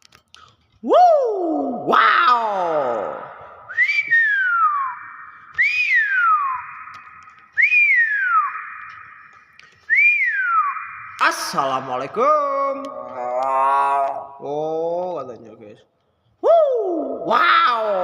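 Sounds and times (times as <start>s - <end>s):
myna whistling: 3.5s - 11.7s.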